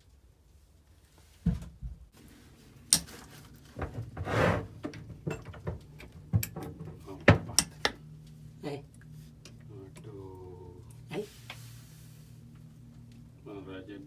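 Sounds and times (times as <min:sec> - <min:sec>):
hard objects knocking and clicking: 0:03.8 - 0:08.0
short scraping sound: 0:04.2 - 0:04.7.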